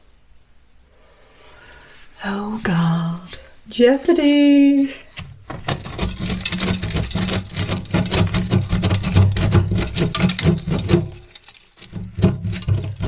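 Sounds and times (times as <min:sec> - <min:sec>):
rubble clattering and falling: 0:05.1 - 0:13.0.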